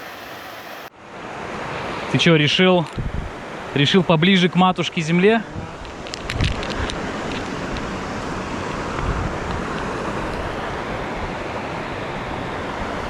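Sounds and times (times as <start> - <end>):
waterfall rushing: 0.0 - 0.9.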